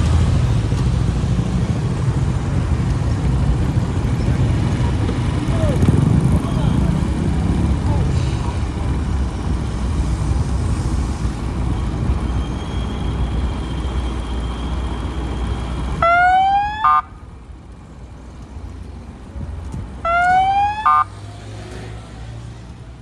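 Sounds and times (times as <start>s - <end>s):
motorbike engine and road rumble: 0.0s - 23.0s
electronic siren wailing: 16.0s - 17.1s, 20.0s - 21.1s.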